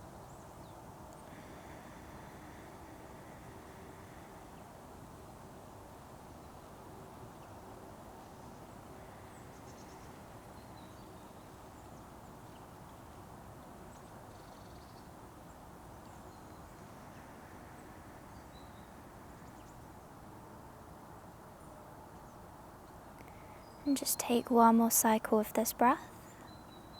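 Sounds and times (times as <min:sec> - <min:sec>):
steady low hiss: 0:00.0 - 0:26.9
faint bird chirps: 0:14.0 - 0:15.2.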